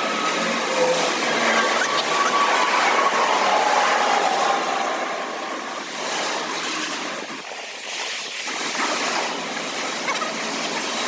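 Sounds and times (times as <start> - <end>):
freeway traffic rushing: 0.0 - 7.4.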